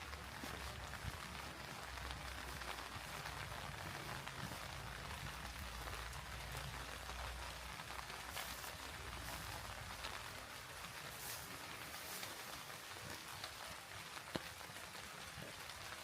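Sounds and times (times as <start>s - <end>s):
raindrops ticking: 0.0s - 16.0s
steady rain hissing: 0.0s - 16.0s.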